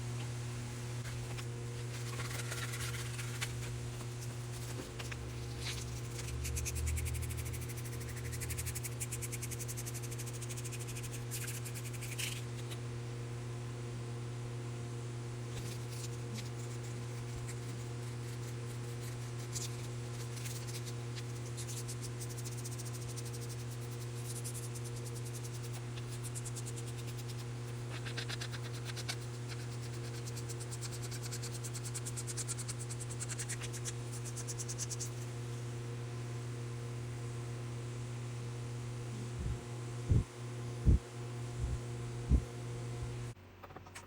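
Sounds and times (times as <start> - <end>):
low electrical hum: 0.0 - 44.0
rapid fine scratching: 1.0 - 12.8, 15.6 - 35.3.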